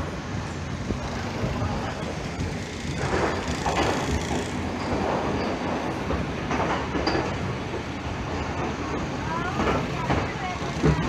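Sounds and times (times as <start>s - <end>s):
train wheels rumbling and rattling: 0.0s - 11.0s.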